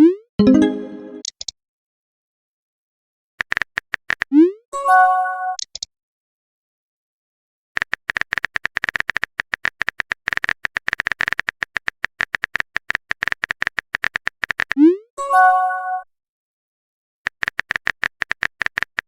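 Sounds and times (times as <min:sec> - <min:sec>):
message sent swoop and chime: 0:00.4 - 0:01.2
phone keyboard typing clicks: 0:07.8 - 0:14.8, 0:17.3 - 0:19.0.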